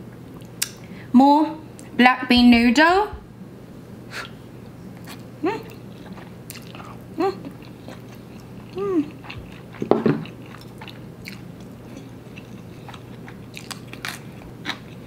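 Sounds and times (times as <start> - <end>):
person chewing noodles: 5.0 - 15.0
person humming mm: 5.4 - 5.8, 6.8 - 7.5, 8.7 - 9.2.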